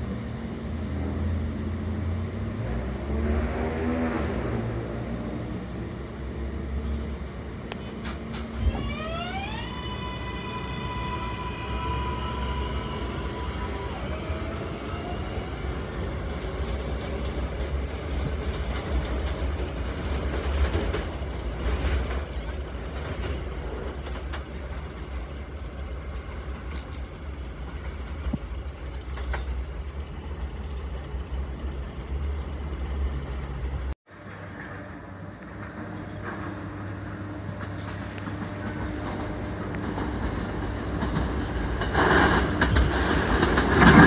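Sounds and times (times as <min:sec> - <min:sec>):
subway train rumbling: 0:00.0 - 0:44.0
wheels clattering over rails: 0:00.3 - 0:25.0, 0:34.1 - 0:44.0
electric motor whine: 0:07.6 - 0:16.6.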